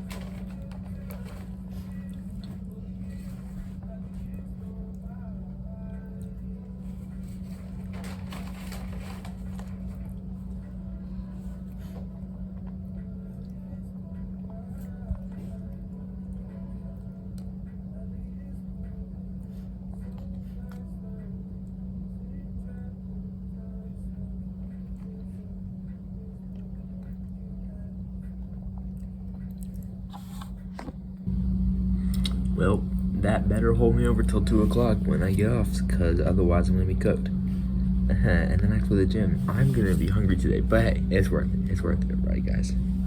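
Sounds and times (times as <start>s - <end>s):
constant hum: 0.0s - 43.0s
person chewing food: 28.7s - 30.1s, 32.1s - 32.5s.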